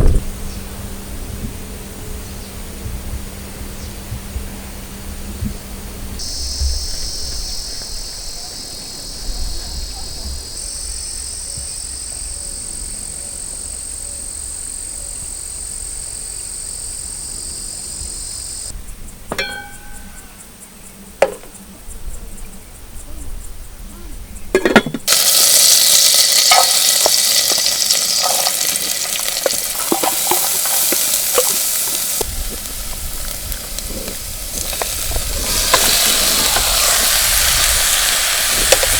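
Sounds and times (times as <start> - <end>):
insects chirring: 0.0 - 38.9
sharp ringing clinks: 19.3 - 20.5.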